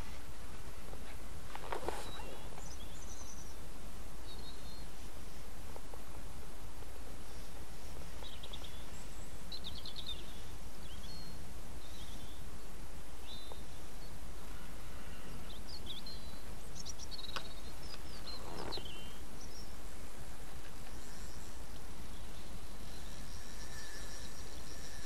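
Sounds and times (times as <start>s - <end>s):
short rustle: 0.0s - 2.7s
small birds chirping: 0.0s - 6.2s, 6.8s - 25.0s.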